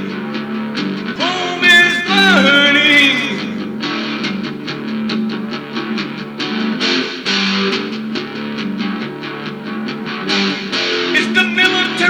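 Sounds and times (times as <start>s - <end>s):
strummed electric guitar: 0.0s - 12.0s
bass line: 1.1s - 3.8s.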